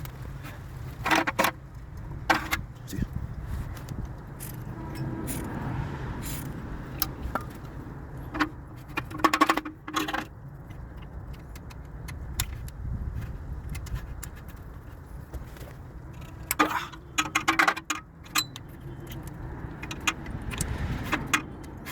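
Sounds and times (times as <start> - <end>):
metal tools clinking: 4.4 - 5.6, 16.1 - 21.9.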